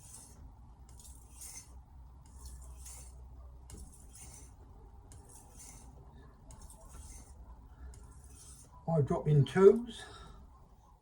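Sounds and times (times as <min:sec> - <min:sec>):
knife scraping on sharpener: 0:00.0 - 0:08.8.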